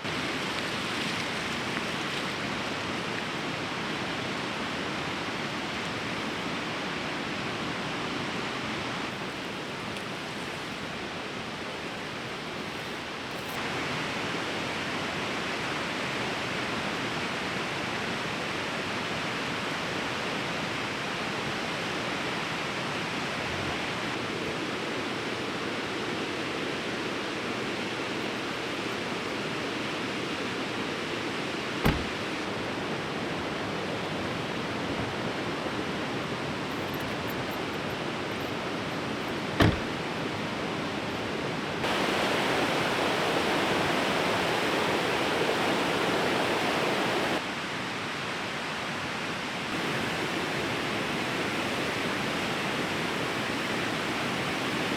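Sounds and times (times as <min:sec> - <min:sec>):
fast-flowing river rushing: 0:39.6 - 0:54.9.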